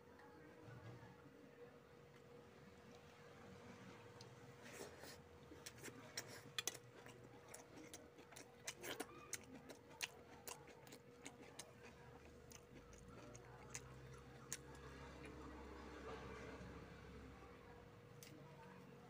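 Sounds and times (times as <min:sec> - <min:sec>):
faint steady hum: 0:00.0 - 0:19.0
person chewing food: 0:04.2 - 0:15.0.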